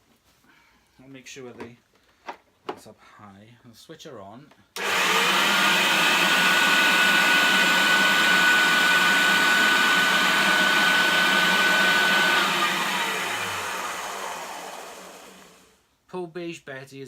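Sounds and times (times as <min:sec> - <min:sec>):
vacuum cleaner motor whining: 0:04.8 - 0:15.7.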